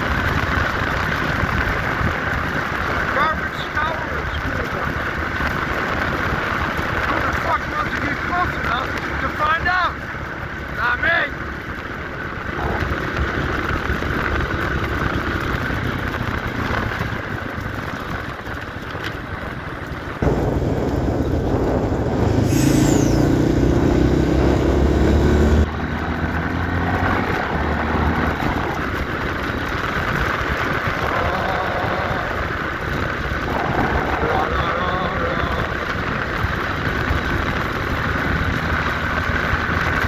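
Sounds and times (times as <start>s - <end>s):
wind noise: 0.0s - 9.2s, 12.0s - 40.0s
motorcycle engine running: 0.0s - 40.0s
high falling whistle: 22.3s - 23.5s.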